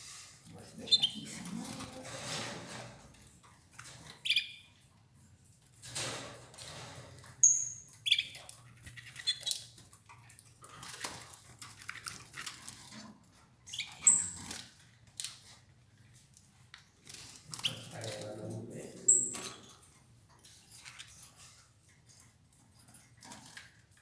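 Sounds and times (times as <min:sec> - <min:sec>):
birds feeding clicks and rustles: 0:00.0 - 0:24.0
canaries chirping: 0:00.5 - 0:03.2, 0:03.8 - 0:05.0, 0:05.8 - 0:09.9, 0:12.0 - 0:21.3.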